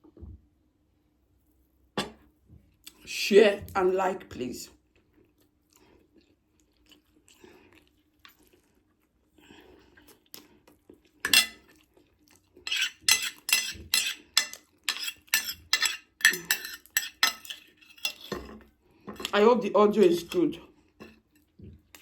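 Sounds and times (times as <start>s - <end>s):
cutlery scraping a dish: 2.0s - 2.2s, 11.3s - 11.6s, 12.6s - 19.3s
loud cutlery strike: 2.0s - 2.2s.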